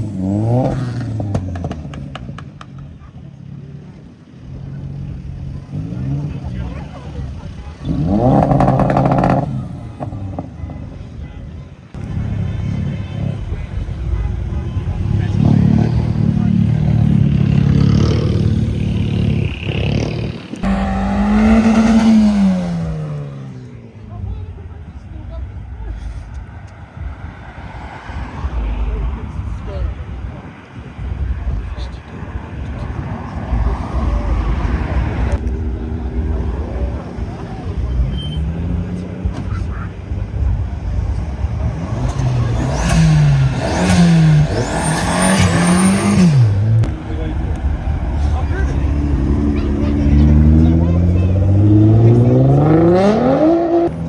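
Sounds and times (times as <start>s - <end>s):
car engine running: 0.0s - 23.8s, 31.0s - 53.0s
louder engine passing: 5.7s - 11.0s, 14.2s - 24.0s, 32.8s - 54.0s.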